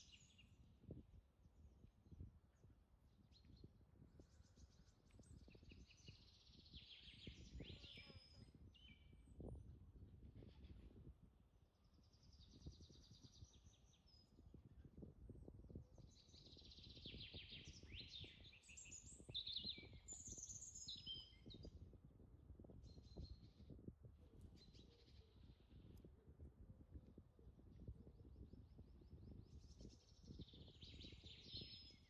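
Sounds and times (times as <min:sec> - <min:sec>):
birds chirping and whistling: 0:17.0 - 0:21.6, 0:29.6 - 0:32.0.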